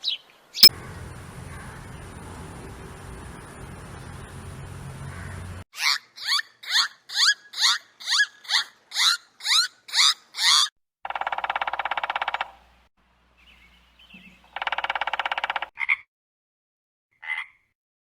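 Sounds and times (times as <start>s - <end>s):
frog trilling call: 11.1s - 12.5s, 14.5s - 16.0s.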